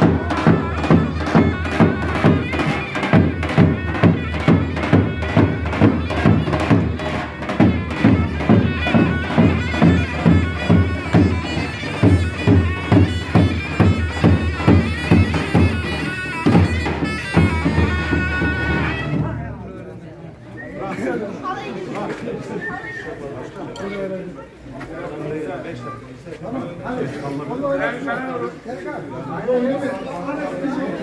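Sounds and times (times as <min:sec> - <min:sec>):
shrill reed pipe melody: 0:00.0 - 0:19.5
steady drum beat: 0:00.0 - 0:19.7.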